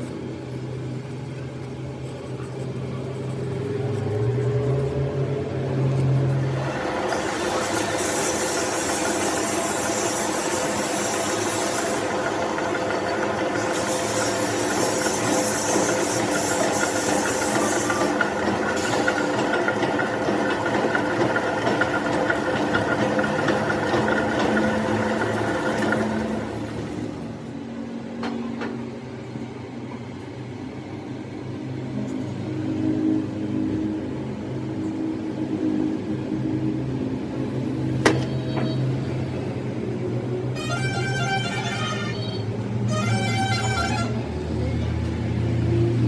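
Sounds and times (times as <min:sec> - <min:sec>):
metal lathe running: 0:06.2 - 0:27.5.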